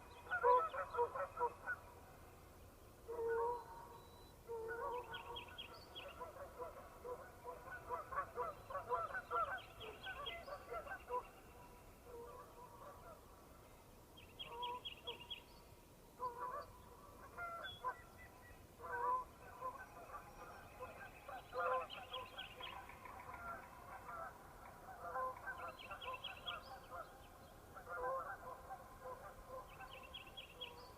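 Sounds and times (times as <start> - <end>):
geese honking: 7.5 - 11.2, 23.2 - 26.0, 27.8 - 29.6.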